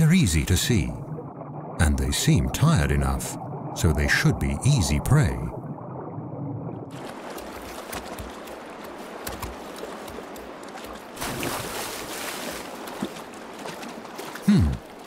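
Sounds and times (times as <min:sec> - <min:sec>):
animal splashing in water: 0:06.9 - 0:15.0
stream water rushing: 0:06.9 - 0:15.0.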